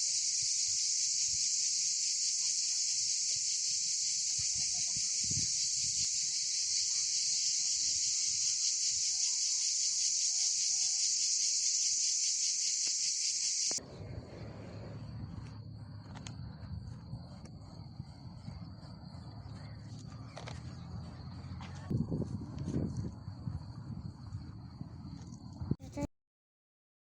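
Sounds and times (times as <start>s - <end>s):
insect chorus: 0.0s - 26.0s
low rumble: 13.8s - 25.7s.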